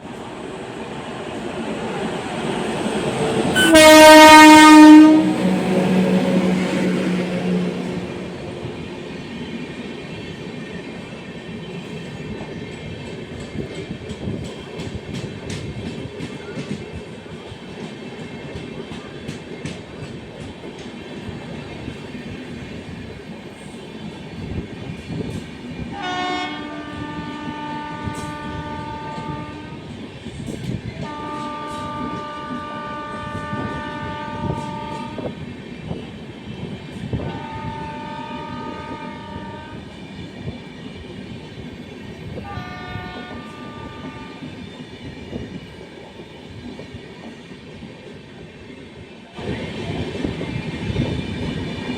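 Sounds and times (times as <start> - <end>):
train rumbling past: 0.0 - 51.9
locomotive horn blasts: 3.6 - 6.7, 26.0 - 29.8, 31.0 - 35.4, 37.2 - 39.9, 42.4 - 44.5.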